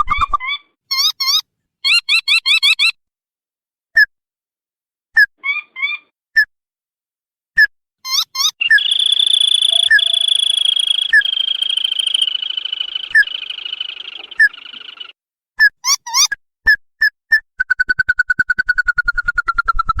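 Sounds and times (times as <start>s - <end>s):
crake calling: 8.1s - 15.1s.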